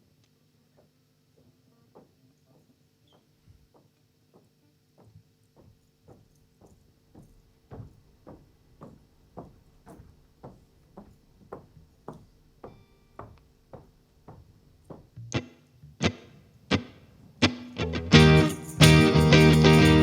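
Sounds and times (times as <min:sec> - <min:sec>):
guitar: 0:14.8 - 0:20.0.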